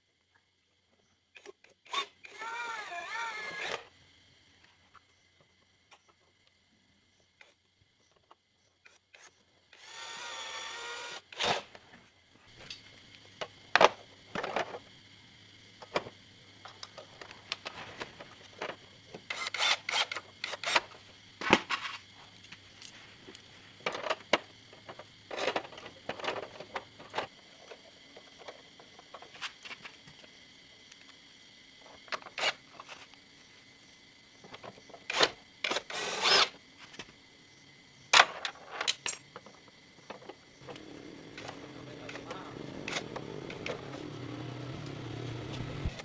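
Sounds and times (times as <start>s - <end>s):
tool whine: 1.8s - 3.9s, 8.9s - 11.8s, 19.2s - 21.0s, 35.1s - 36.6s, 40.6s - 46.0s
metal tools clinking: 38.2s - 39.5s.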